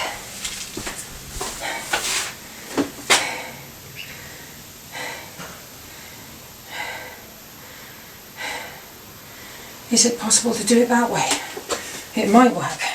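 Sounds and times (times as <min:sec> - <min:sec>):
man breathing heavily: 0:00.0 - 0:03.5, 0:04.2 - 0:09.8.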